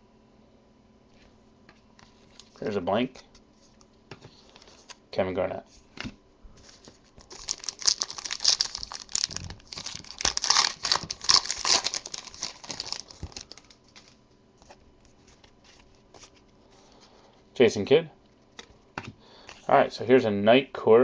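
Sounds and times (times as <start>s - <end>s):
wrapper crinkling: 6.6s - 16.5s.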